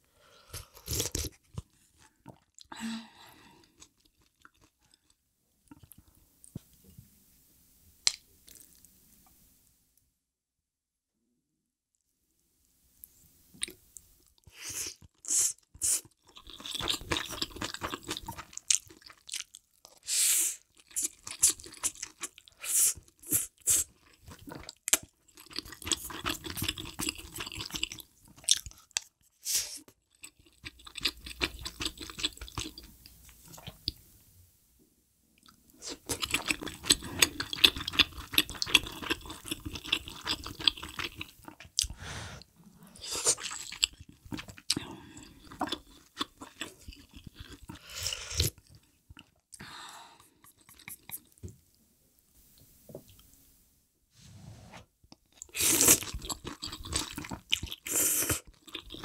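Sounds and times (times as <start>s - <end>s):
wet chewing and crunching: 15.0s - 20.1s, 20.7s - 29.2s, 30.0s - 32.9s, 35.4s - 42.0s, 43.0s - 49.6s, 55.1s - 59.0s.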